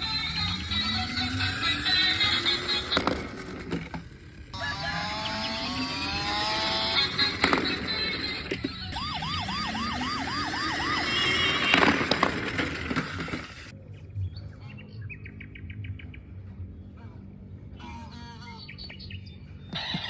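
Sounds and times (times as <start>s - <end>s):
chirping sounds: 4.6s - 8.6s
electronic siren whoops: 4.6s - 13.7s
synthetic beeps and falling tones: 4.6s - 13.7s.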